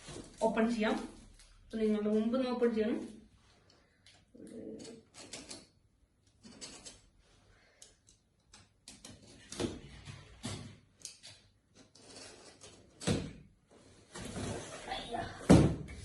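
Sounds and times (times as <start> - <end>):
scraping and rustling: 13.7 - 15.4.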